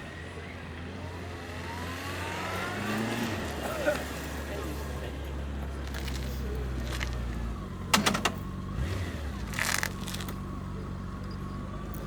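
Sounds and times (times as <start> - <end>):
motorcycle engine idling: 4.2 - 12.0
sharp clatter: 6.9 - 8.6.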